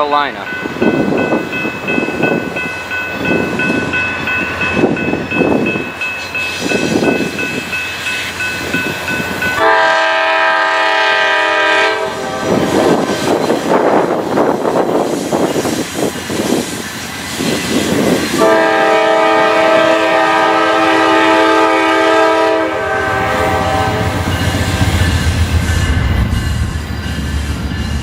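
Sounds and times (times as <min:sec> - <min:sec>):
freight train rumbling: 0:00.0 - 0:28.0
locomotive horn: 0:09.6 - 0:12.8, 0:18.4 - 0:24.4.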